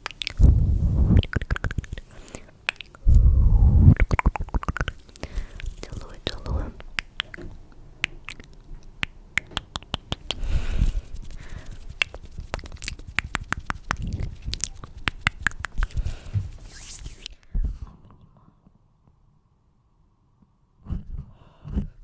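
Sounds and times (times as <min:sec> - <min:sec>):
mouth clicks and smacks: 0:00.0 - 0:17.4
soft rustling: 0:10.4 - 0:17.3.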